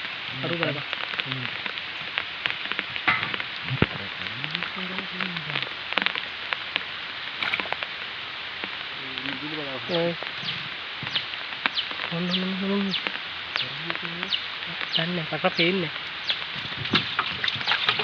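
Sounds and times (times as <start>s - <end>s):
water splashing and trickling: 0.0s - 18.0s.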